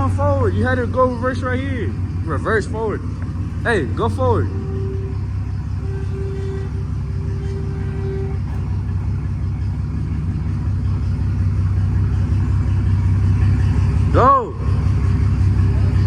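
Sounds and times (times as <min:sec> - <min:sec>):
pickup truck engine rumbling: 0:00.0 - 0:16.0
faint steady tone: 0:03.0 - 0:10.1.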